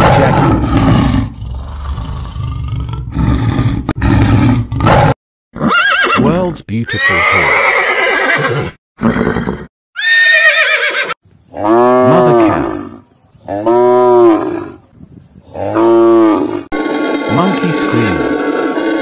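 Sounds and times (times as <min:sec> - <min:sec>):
horse neighing: 0:05.6 - 0:06.2, 0:06.9 - 0:14.8, 0:15.6 - 0:19.0.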